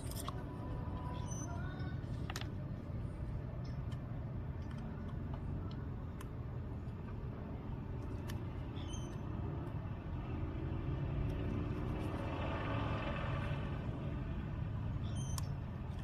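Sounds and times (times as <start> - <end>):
traffic rumble: 0.0 - 16.0
vehicle passing by: 9.2 - 15.0.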